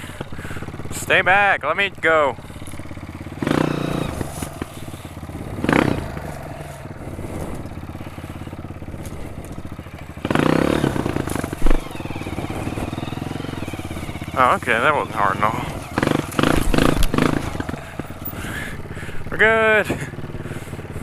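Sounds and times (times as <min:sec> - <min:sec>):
trail bike engine revving: 0:00.0 - 0:21.0.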